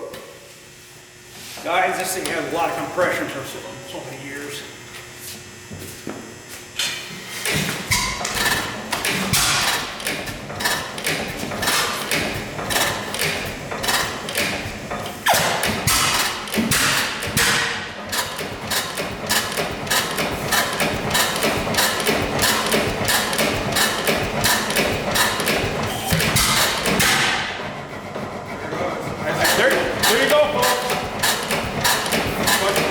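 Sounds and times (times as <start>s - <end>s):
gas engine banging and clacking: 7.4s - 32.9s.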